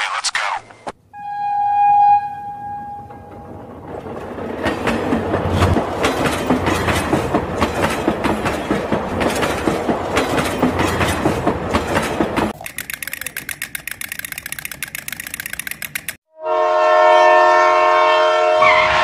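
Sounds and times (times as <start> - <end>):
toy train whistle tone: 1.2 - 3.2
toy train clickety-clack rattle: 12.0 - 16.2.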